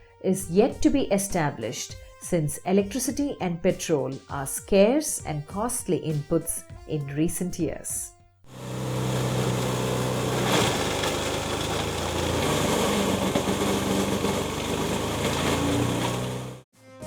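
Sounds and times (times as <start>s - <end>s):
shredder grinding: 8.5s - 16.6s
shredder engine hum: 8.5s - 16.7s.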